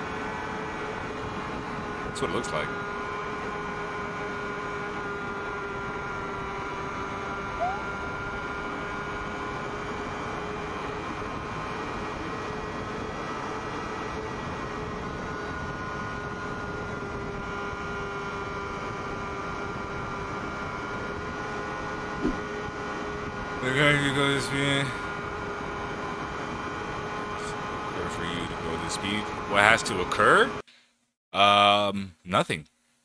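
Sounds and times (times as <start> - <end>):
motorcycle engine at high revs: 2.8 - 30.4
short rising engine blip: 7.6 - 8.1, 22.2 - 22.4.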